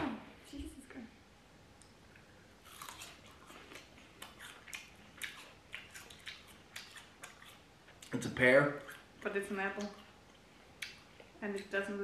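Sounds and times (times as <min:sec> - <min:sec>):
people crunching raw pear: 0:02.6 - 0:09.2.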